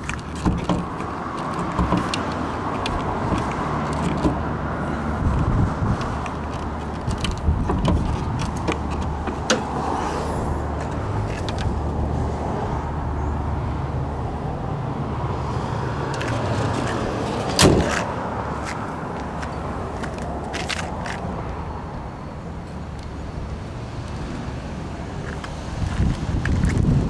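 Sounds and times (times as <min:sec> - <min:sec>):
light clicks and knocks: 0:00.0 - 0:04.4
car hood slamming shut: 0:17.6 - 0:18.0.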